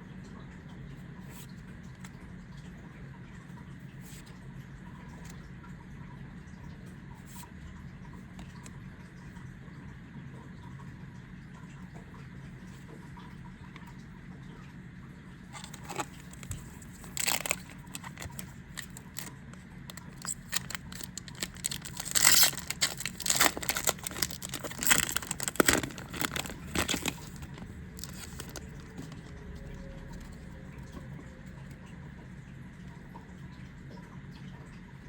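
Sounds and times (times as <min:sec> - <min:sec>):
foil wrapper tearing and crinkling: 0:15.6 - 0:29.3.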